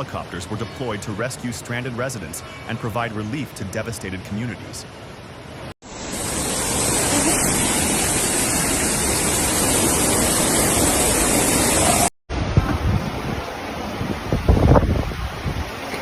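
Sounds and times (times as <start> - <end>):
rushing water: 0.0 - 16.0
wind noise on microphone: 9.9 - 16.0.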